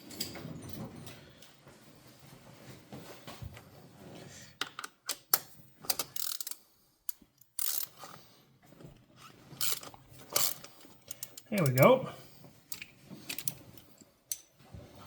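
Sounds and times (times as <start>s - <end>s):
wrench metallic clicks and scrapes: 4.8s - 8.2s, 9.6s - 11.8s, 12.7s - 13.6s.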